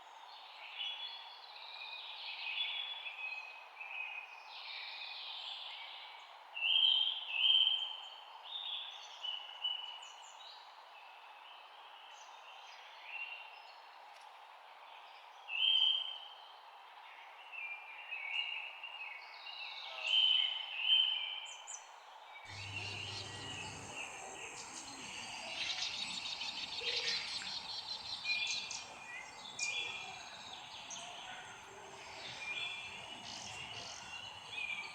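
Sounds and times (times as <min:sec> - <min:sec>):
songbirds chirping: 0:22.5 - 0:34.9
steady background hiss: 0:22.5 - 0:34.9.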